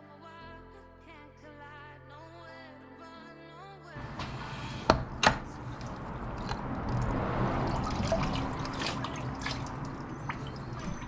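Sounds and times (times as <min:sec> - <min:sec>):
coolant splashing out: 0:04.0 - 0:11.0.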